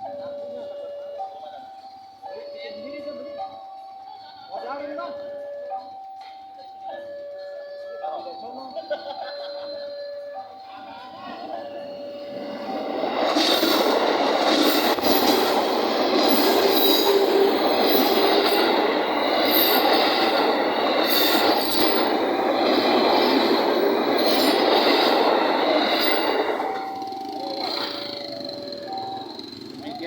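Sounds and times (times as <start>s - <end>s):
train wheels rushing on rails: 11.0s - 30.0s
high-pitched wheel squeal: 11.3s - 30.0s.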